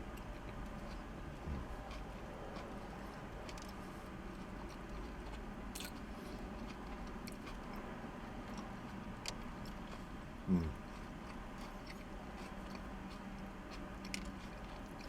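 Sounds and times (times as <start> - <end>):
man chewing food: 0.0 - 15.0
man humming: 1.4 - 1.7, 10.4 - 10.8.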